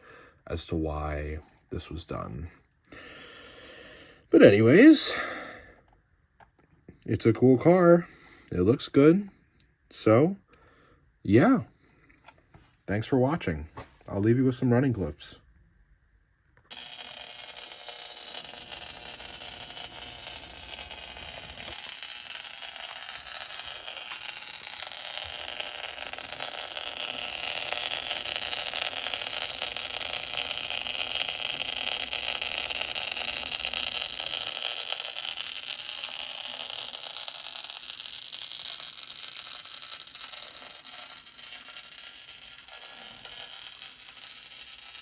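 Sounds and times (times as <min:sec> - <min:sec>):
model train whirring on rails: 0:16.7 - 0:45.0.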